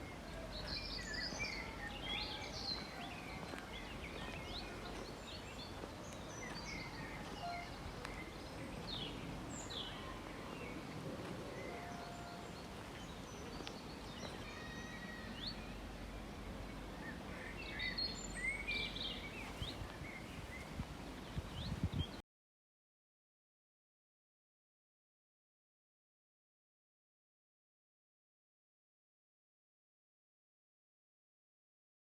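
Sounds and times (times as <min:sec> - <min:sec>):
low outdoor background noise: 0:00.0 - 0:22.2
small birds chirping: 0:00.0 - 0:22.2.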